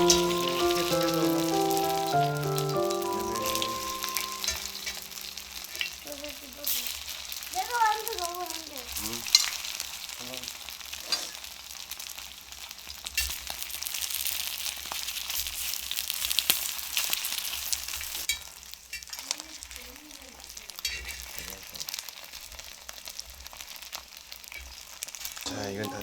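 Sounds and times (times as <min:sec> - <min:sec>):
food sizzling in oil: 0:00.0 - 0:26.0.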